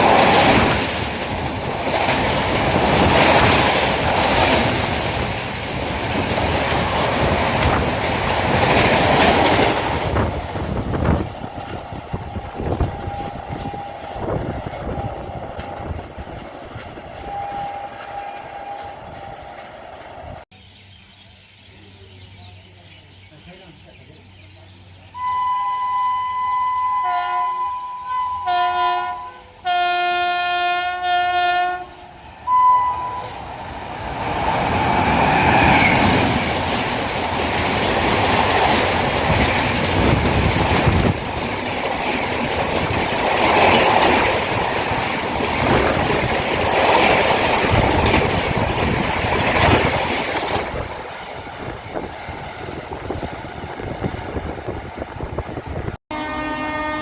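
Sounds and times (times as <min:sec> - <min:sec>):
train rushing past: 0:00.0 - 0:20.8, 0:23.6 - 0:57.0
train horn blasts: 0:12.6 - 0:14.3, 0:17.2 - 0:19.5, 0:25.2 - 0:33.4, 0:56.1 - 0:57.0
wheels clattering over rail joints: 0:33.2 - 0:53.5.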